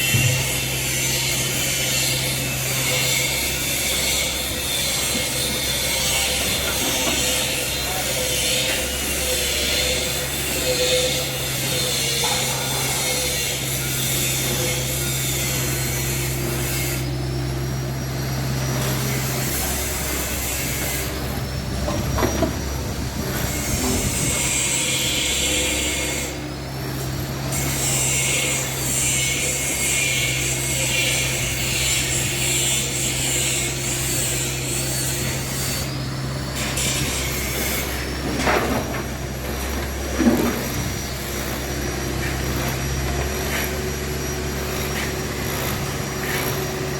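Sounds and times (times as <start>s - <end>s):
hydraulic whine: 0.0s - 46.9s
excavator diesel engine running: 35.9s - 46.9s.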